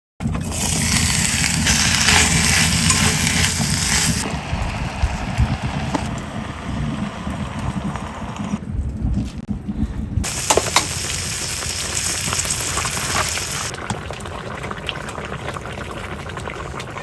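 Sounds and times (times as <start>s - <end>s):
campfire crackling: 0.2s - 8.3s, 10.2s - 16.9s
low rumbling noise: 0.2s - 13.9s
loud steady hiss: 0.4s - 4.3s, 10.3s - 13.7s.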